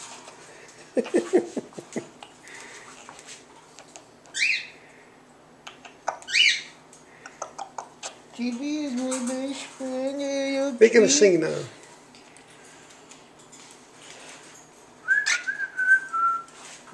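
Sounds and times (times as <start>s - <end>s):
cockatiel calling: 4.3s - 4.7s, 6.2s - 6.8s.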